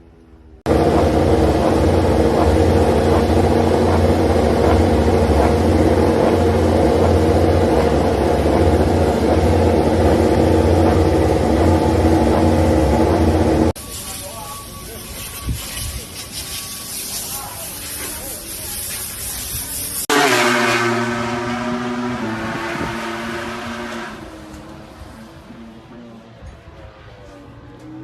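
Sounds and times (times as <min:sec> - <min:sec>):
engine running steadily: 0:00.7 - 0:13.8.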